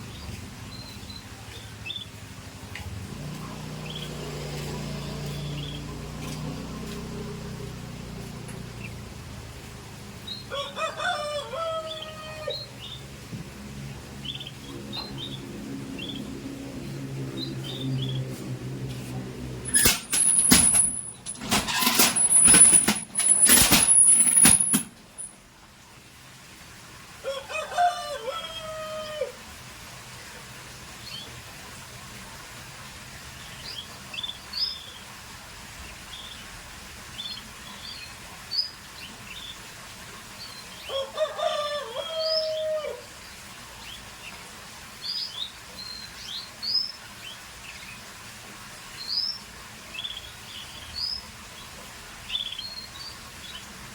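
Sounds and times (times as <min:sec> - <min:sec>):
rooster crowing: 0:10.5 - 0:12.7, 0:27.2 - 0:29.4, 0:40.9 - 0:43.1
rustling clattering bursts: 0:19.6 - 0:25.4.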